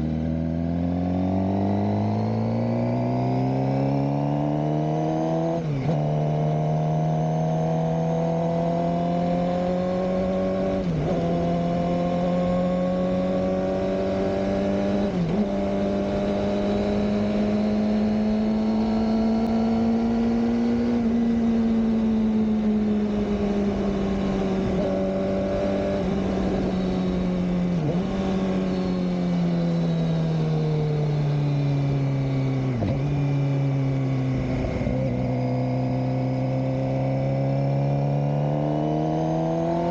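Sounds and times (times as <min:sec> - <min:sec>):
motorcycle engine running: 0:07.6 - 0:38.6.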